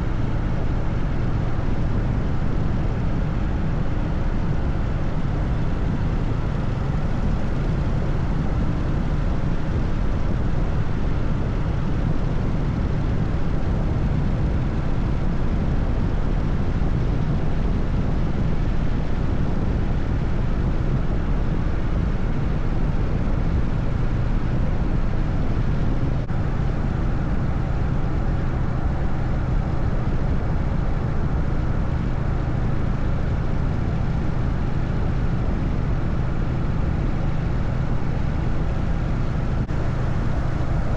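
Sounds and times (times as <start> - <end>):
road noise: 0.0 - 40.9
wind noise: 0.0 - 40.9
motorcycle engine cruising: 39.5 - 40.9.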